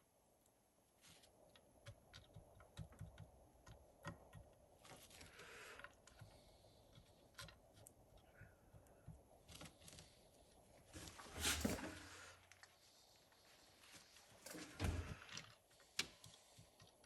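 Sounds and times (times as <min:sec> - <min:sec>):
handling noises: 0:09.1 - 0:17.0.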